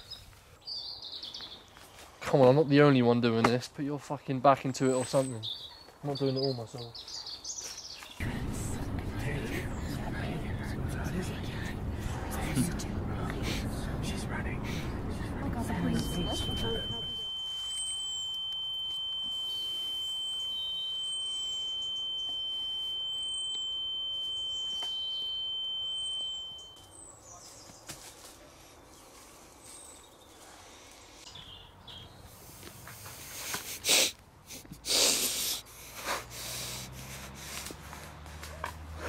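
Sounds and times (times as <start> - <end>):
steady high-pitched tone: 8.2 - 27.0
short high chirps: 15.8 - 27.2.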